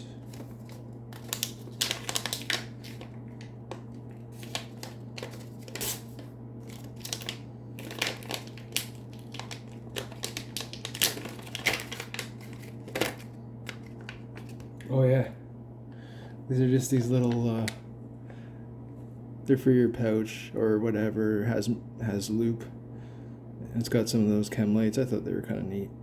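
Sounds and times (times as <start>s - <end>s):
low electrical hum: 0.0s - 26.0s
plastic packaging crinkling: 0.1s - 14.8s.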